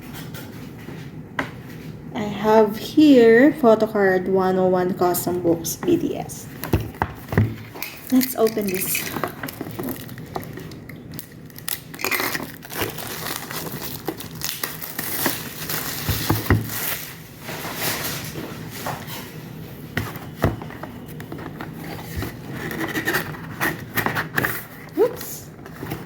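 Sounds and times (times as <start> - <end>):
packaging crinkling and tearing: 7.6 - 18.4.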